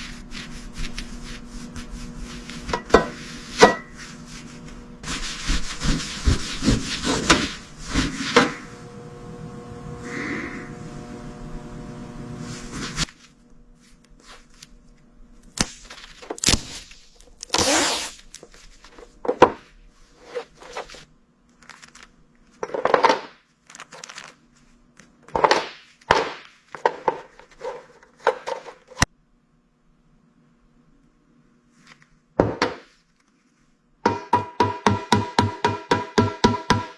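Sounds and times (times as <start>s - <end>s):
faint steady hum: 0.0s - 22.6s
scraping and rustling strokes: 0.0s - 22.6s, 32.9s - 33.8s
steady machine noise: 1.0s - 13.1s.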